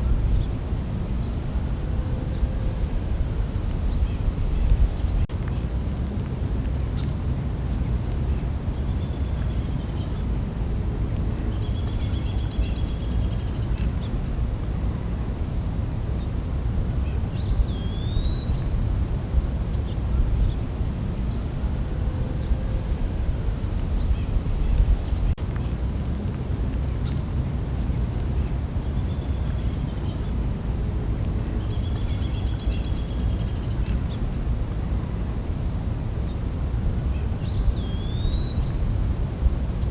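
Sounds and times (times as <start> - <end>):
insects chirping: 0.0 - 39.9
insects trilling: 7.4 - 26.8, 27.4 - 39.9.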